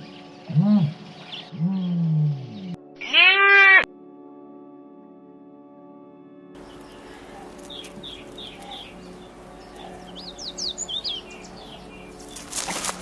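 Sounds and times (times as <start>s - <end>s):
songbird chirping: 0.0s - 3.6s, 6.6s - 13.0s.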